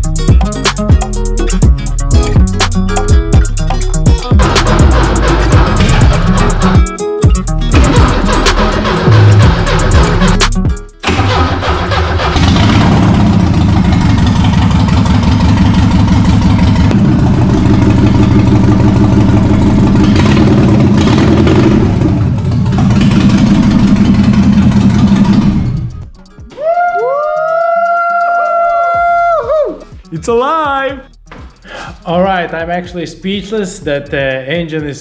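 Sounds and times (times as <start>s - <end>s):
car engine cranking and starting: 0.0s - 26.4s.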